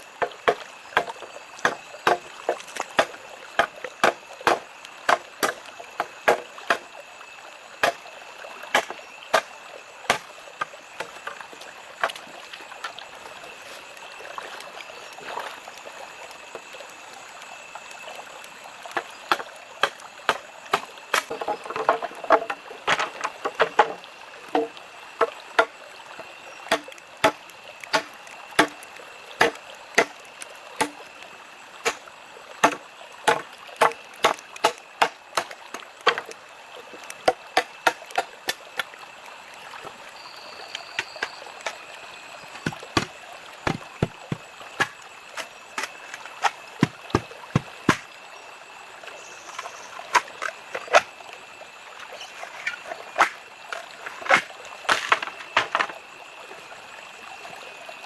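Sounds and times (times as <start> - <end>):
sharp knocks: 42.6 - 45.0.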